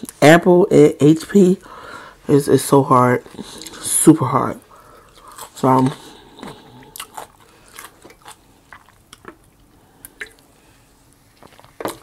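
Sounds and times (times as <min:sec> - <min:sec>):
chewing and mouth clicks: 0:05.0 - 0:10.5.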